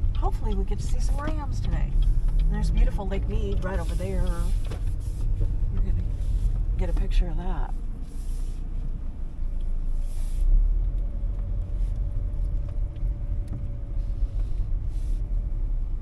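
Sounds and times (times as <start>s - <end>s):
car engine and tyres rumble: 0.0s - 16.0s.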